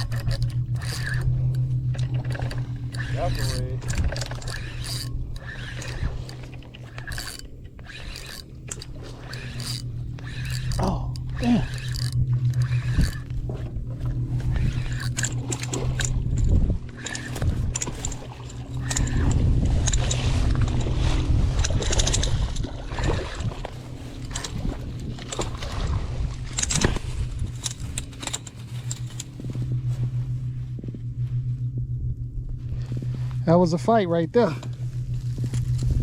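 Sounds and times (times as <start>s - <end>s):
low steady hum: 0.0s - 36.0s.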